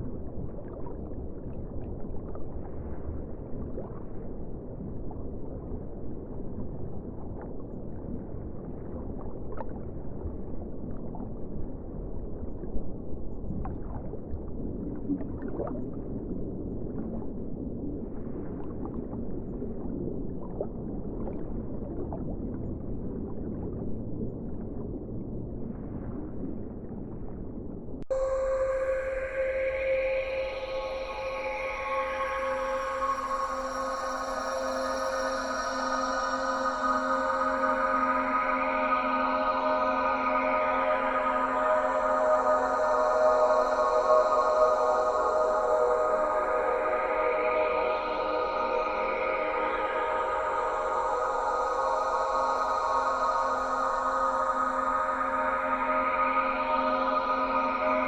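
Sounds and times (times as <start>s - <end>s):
faint water gurgles: 0.0s - 58.0s
muffled ocean water rush: 0.0s - 58.0s.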